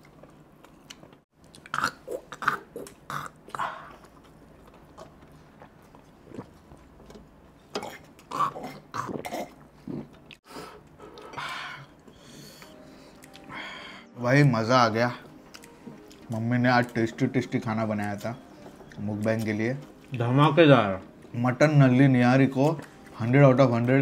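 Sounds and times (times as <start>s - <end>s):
wet chewing and lip smacks: 15.4s - 17.0s.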